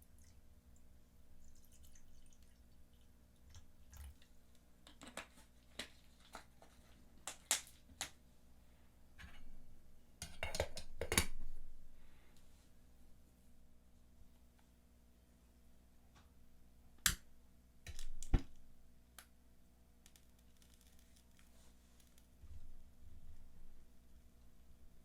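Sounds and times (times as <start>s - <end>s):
objects being handled: 4.8s - 8.2s.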